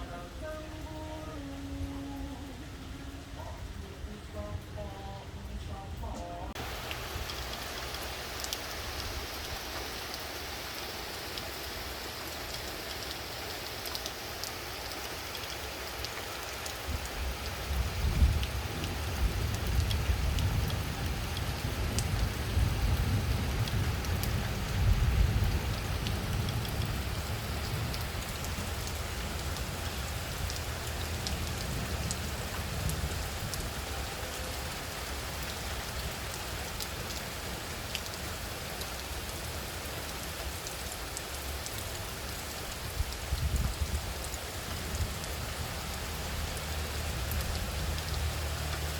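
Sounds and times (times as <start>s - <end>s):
light rain falling: 0.0s - 48.9s
raindrop ticks: 3.4s - 48.9s
strong wind gusts rumbling: 16.9s - 34.1s, 42.7s - 48.0s.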